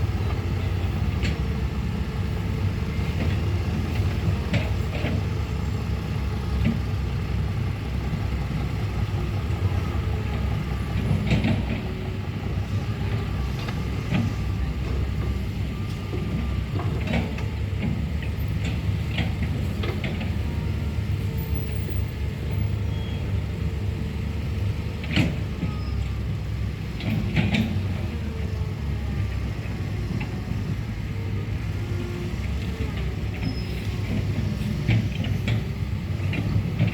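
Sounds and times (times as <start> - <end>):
heavy diesel engine running: 0.0 - 36.9.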